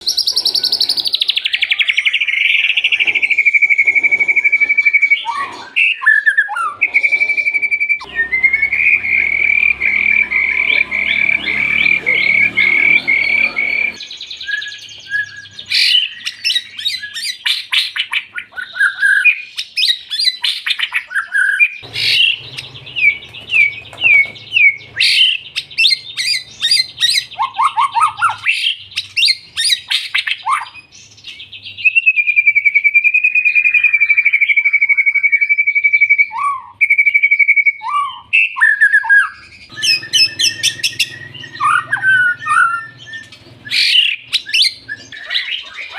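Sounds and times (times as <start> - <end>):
bird singing whistles and trills: 0.0 - 45.9
low hum: 8.0 - 14.0.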